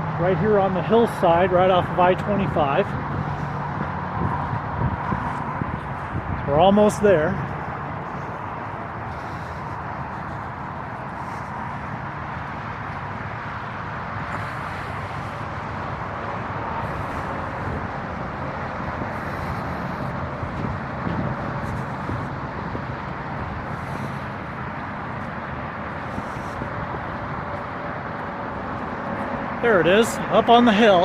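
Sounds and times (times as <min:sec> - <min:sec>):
highway traffic hum: 0:00.0 - 0:31.0.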